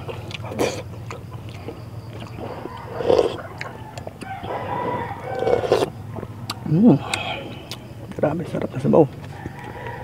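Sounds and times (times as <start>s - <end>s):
person chewing food: 0.0s - 8.2s.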